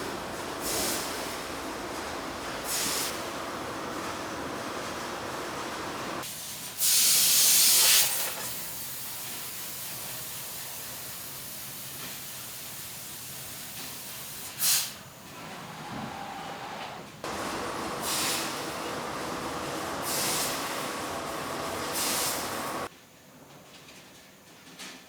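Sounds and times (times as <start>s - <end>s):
laser cutter gas jets hissing: 0.0s - 3.8s, 5.1s - 15.0s, 17.3s - 22.9s.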